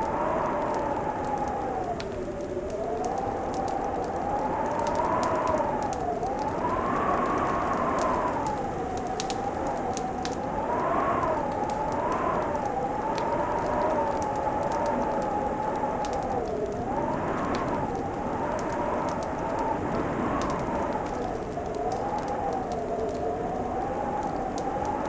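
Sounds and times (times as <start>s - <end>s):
fireplace crackling: 0.0s - 25.0s.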